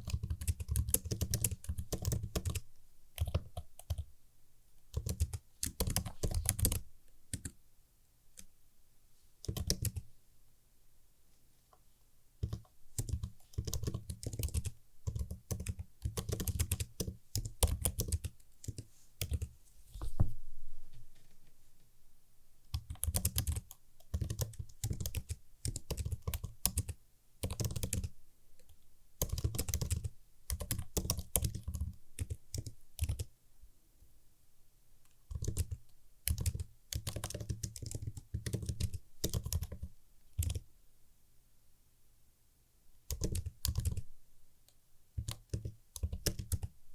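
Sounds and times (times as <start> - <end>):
typing on a computer keyboard: 0.0 - 2.6, 3.2 - 4.1, 4.9 - 7.6, 9.4 - 10.1, 12.4 - 19.5, 22.7 - 33.3, 35.3 - 40.6, 43.1 - 44.1, 45.2 - 46.8.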